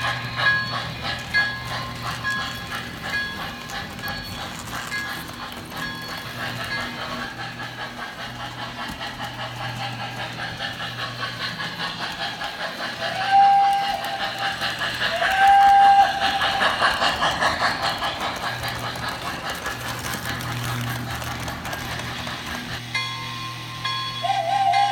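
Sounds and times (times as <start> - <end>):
steam chuffing: 0.0 - 24.9
steam whistle blasts: 13.1 - 14.2, 15.1 - 16.6, 24.2 - 24.9.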